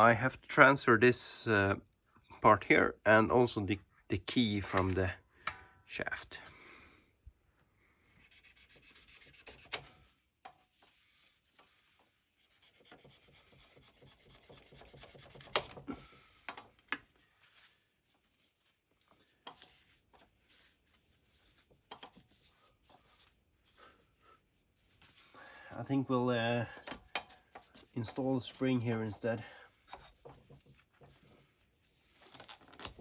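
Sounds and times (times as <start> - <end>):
faint rubbing and scraping: 8.0 - 16.4, 17.1 - 33.0.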